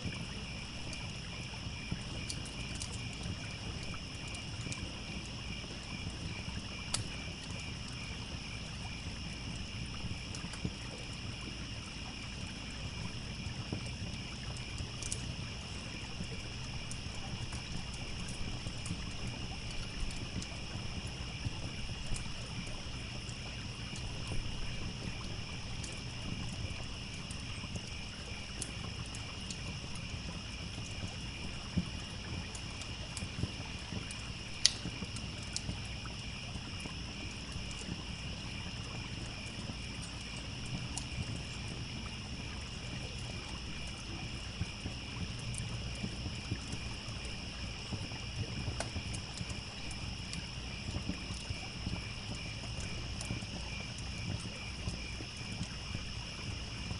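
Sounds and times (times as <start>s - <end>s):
campfire crackling and popping: 0.0s - 56.9s
crickets chirring: 0.0s - 56.9s
trickling stream: 0.0s - 56.9s.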